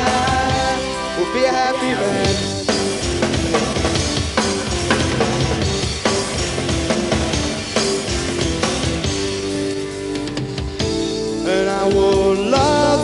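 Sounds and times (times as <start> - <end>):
bass guitar: 0.0 - 13.0
drum kit: 0.0 - 13.0
electric guitar: 0.0 - 13.0.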